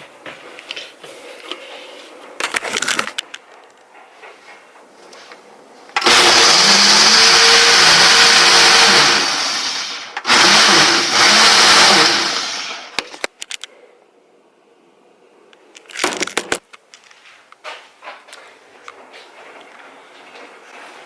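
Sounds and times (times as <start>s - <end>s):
countertop blender running: 6.0s - 13.0s.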